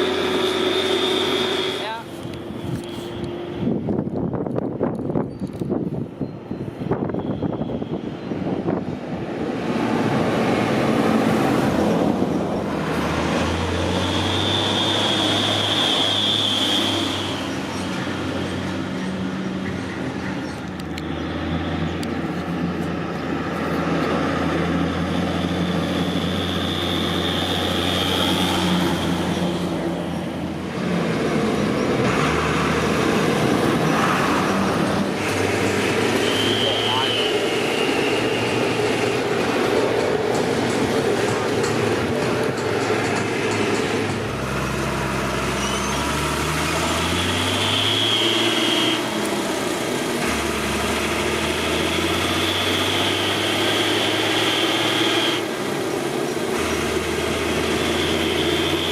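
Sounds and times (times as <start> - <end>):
turbocharger whistle: 0.0 - 2.0, 13.8 - 17.6, 25.1 - 29.4, 36.0 - 38.9, 46.8 - 49.2, 51.7 - 55.5, 57.7 - 58.9
tractor diesel engine running: 0.0 - 4.4, 10.1 - 58.9.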